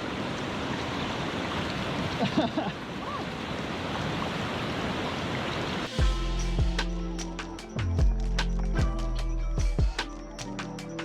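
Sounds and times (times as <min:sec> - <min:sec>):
river rushing over its bed: 0:00.0 - 0:06.0.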